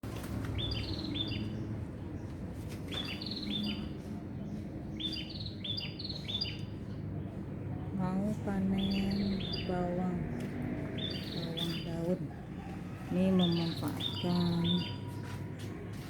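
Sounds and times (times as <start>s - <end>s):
small songbirds chirping: 0.5s - 7.1s, 8.5s - 12.2s.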